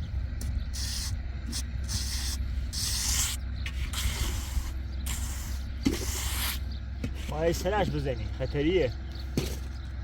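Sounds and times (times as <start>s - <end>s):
steady low hum: 0.0s - 10.0s
tool scraping wet concrete: 2.9s - 7.9s.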